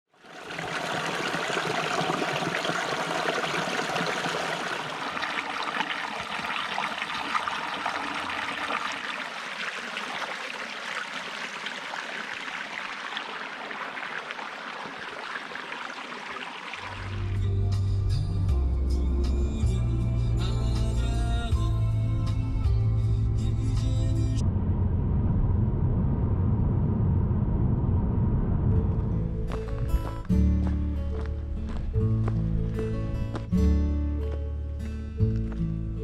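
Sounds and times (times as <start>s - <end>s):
stream flowing: 0.1s - 17.4s.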